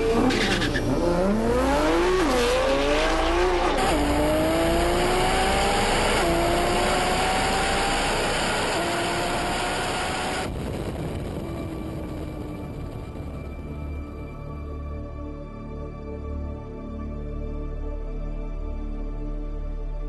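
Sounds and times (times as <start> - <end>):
car engine accelerating hard: 0.0 - 10.6.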